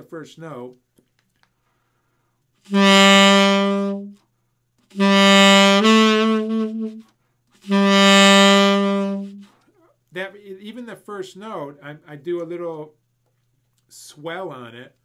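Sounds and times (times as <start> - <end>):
saxophone held notes: 2.7 - 4.2, 5.0 - 7.0, 7.6 - 9.5.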